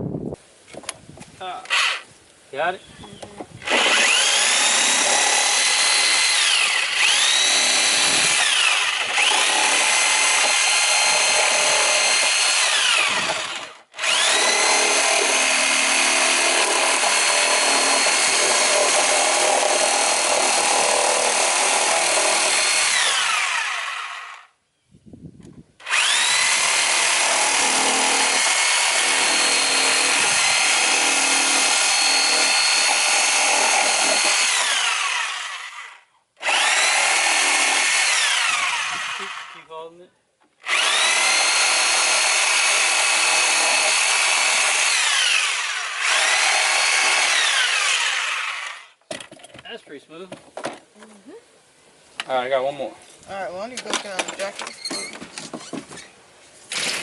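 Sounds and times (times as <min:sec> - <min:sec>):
power tool motor whining: 0:01.6 - 0:02.1, 0:03.6 - 0:24.5, 0:25.8 - 0:39.6, 0:40.6 - 0:49.0.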